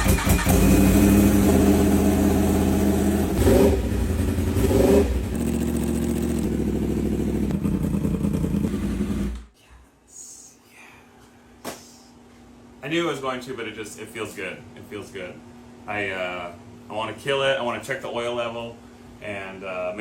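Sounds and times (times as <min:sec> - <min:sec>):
motorcycle engine idling and revving: 0:00.0 - 0:09.5.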